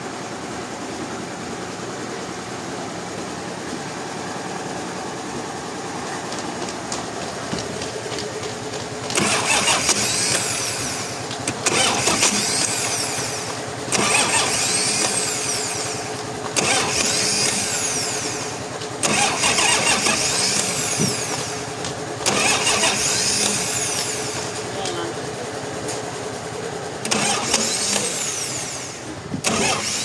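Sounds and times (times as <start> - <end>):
steady machine hum: 0.0 - 30.0
saw cutting timber: 9.0 - 25.1, 27.0 - 30.0.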